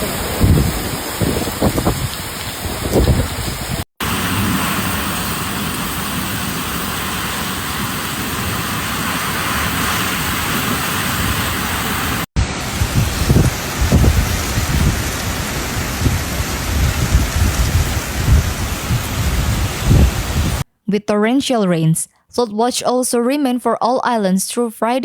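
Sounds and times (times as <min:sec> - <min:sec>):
wind buffeting microphone: 0:00.0 - 0:03.9, 0:12.4 - 0:20.6
heavy rain pouring: 0:00.0 - 0:20.6.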